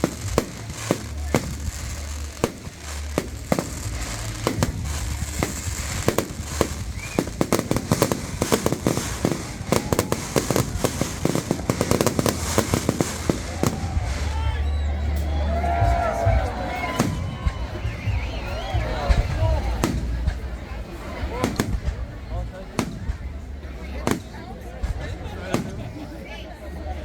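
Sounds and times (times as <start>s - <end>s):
firecrackers popping: 0.0s - 26.4s.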